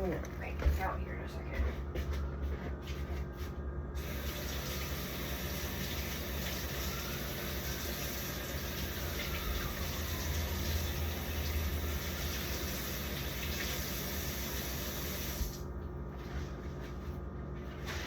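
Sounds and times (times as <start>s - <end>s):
water running from tap: 4.0s - 15.6s.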